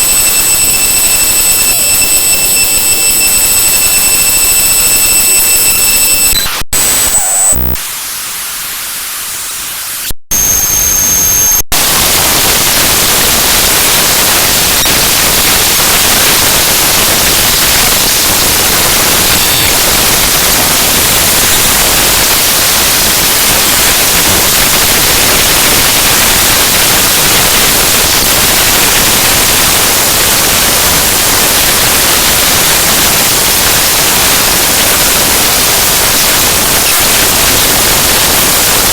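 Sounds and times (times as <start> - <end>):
steady high tones: 0.0 - 11.6
harsh digital static: 0.0 - 38.9.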